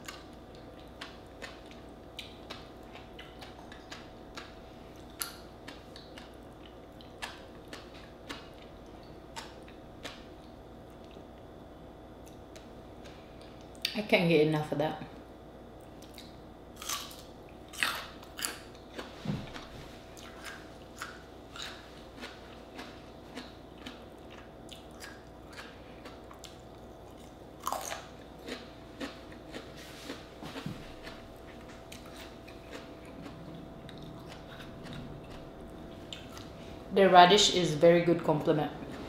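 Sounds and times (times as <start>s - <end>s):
crunching raw radish: 16.0s - 36.6s.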